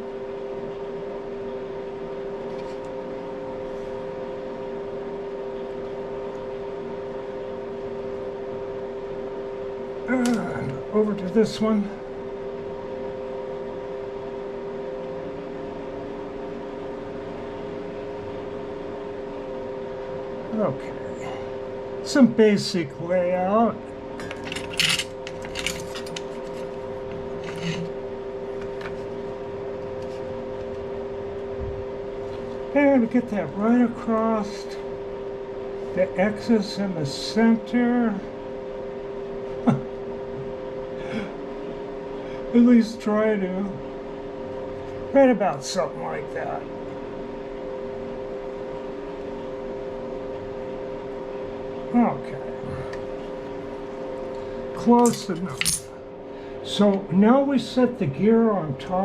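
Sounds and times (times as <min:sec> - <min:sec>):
motor hum: 0:00.0 - 0:59.0
small tools clicking: 0:24.3 - 0:26.3, 0:55.0 - 0:55.9.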